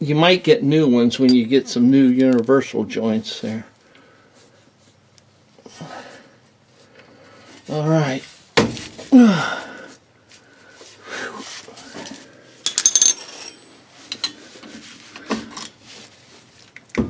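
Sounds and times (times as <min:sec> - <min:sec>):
wrench clinking on metal bolts: 0:12.7 - 0:14.4.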